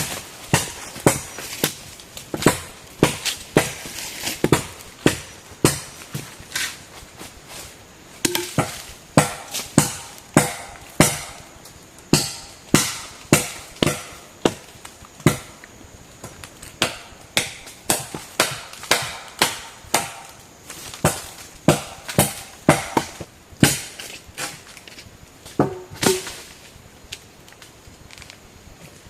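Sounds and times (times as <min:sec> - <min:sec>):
chopping blows: 0:16.2 - 0:24.0, 0:25.6 - 0:26.4.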